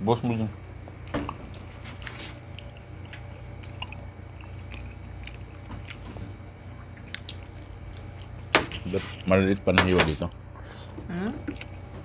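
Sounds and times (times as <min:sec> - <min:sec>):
low steady hum: 0:00.0 - 0:12.0
chewing and lip smacks: 0:01.3 - 0:08.5, 0:11.4 - 0:11.8.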